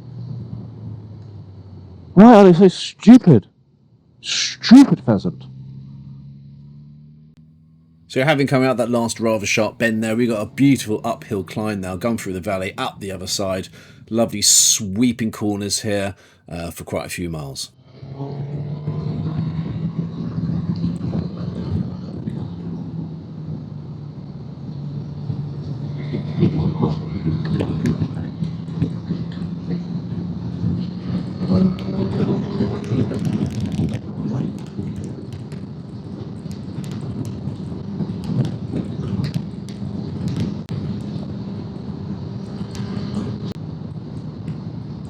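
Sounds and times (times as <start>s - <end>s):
motorcycle engine: 0.0s - 2.6s, 3.5s - 14.2s, 17.7s - 45.0s
wind and road noise: 0.0s - 45.0s
motorcycle engine running: 5.1s - 9.4s.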